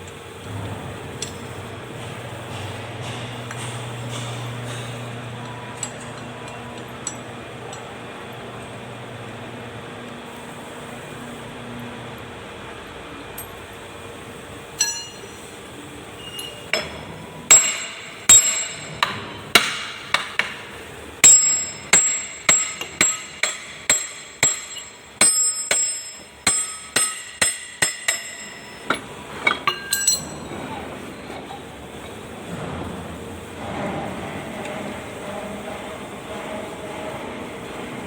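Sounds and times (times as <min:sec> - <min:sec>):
hammer on metal: 0:01.2 - 0:05.1, 0:16.7 - 0:30.3.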